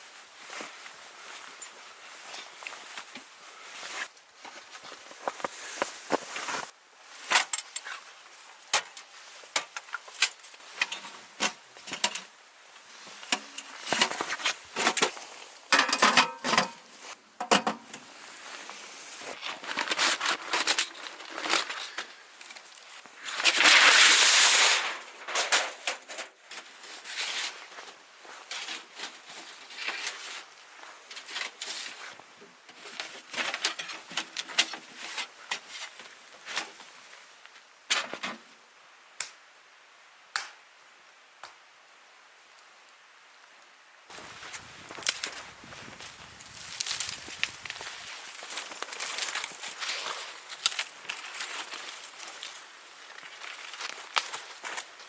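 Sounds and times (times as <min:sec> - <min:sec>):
handling clicks and rustles: 0:44.1 - 0:55.0.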